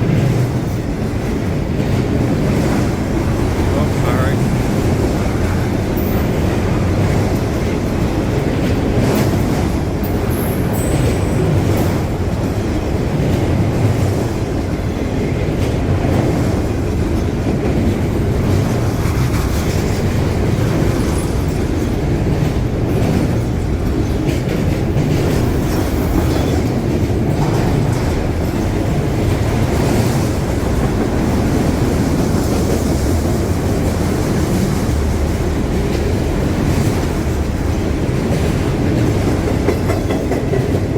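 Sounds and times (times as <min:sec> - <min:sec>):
freight train wheels rumbling: 0:00.0 - 0:40.9
train cars clattering over track: 0:00.0 - 0:40.9.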